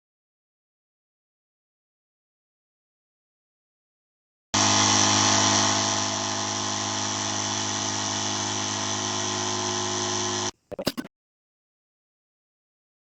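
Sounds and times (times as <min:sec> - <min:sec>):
brief sounds: 0:10.6 - 0:11.1.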